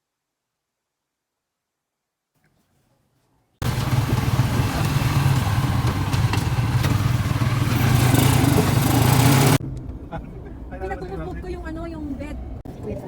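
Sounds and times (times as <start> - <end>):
rushing noise: 3.6 - 9.6
vehicle engine running: 3.6 - 9.8.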